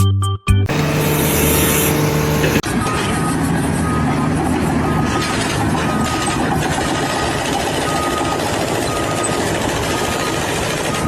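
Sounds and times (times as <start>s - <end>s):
machine engine running: 0.7s - 2.6s.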